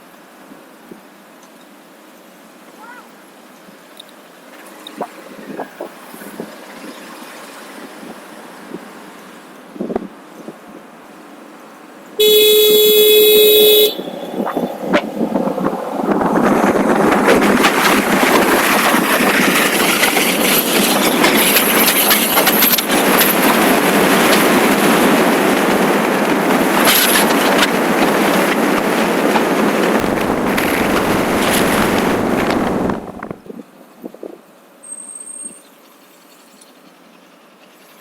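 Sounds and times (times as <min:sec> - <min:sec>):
motorcycle road noise: 0:04.5 - 0:33.6
wind rush on microphone: 0:04.9 - 0:09.1, 0:09.7 - 0:11.0, 0:12.8 - 0:34.5.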